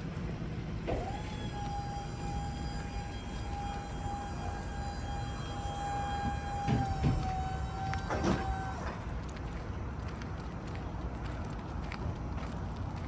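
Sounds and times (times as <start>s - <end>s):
truck idling rumble: 0.0s - 13.0s
high-pitched whine: 0.9s - 9.0s.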